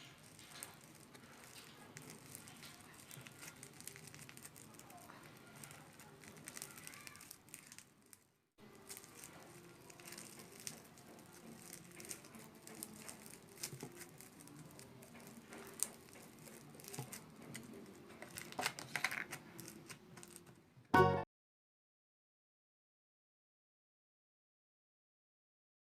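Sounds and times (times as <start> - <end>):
slime squishing and popping: 0.0 - 8.2, 8.8 - 20.5.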